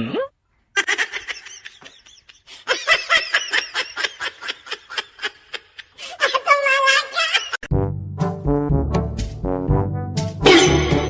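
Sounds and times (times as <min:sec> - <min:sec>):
person laughing: 0:00.8 - 0:07.7.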